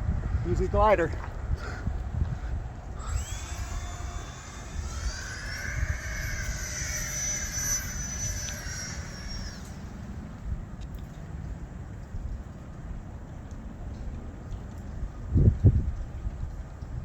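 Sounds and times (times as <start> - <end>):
wind rumble on microphone: 0.0 - 17.0
electric jet fan whining: 1.8 - 10.8.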